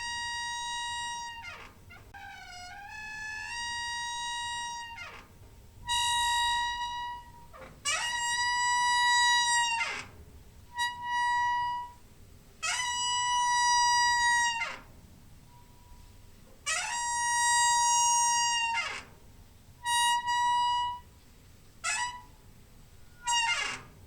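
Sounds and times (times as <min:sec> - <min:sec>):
door hinge squealing: 0:00.0 - 0:12.0, 0:12.6 - 0:14.9, 0:16.7 - 0:19.2, 0:19.8 - 0:21.1, 0:21.8 - 0:22.4, 0:23.0 - 0:24.0.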